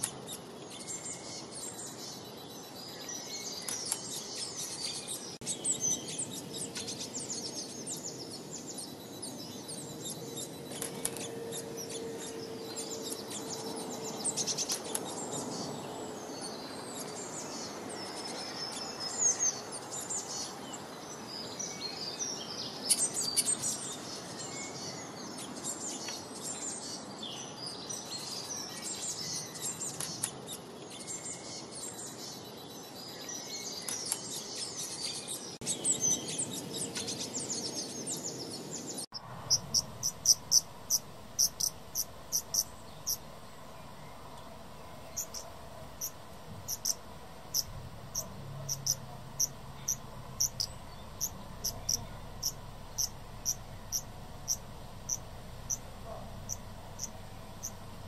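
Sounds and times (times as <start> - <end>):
small birds chirping: 0.0 - 58.0
steady background hiss: 0.0 - 58.0
repeating sharp chirp: 39.4 - 43.3, 45.1 - 57.8.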